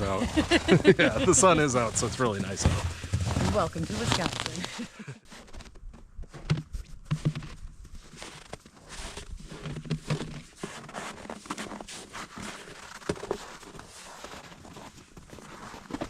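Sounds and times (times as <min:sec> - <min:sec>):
footsteps crunching on snow: 0:00.0 - 0:05.7.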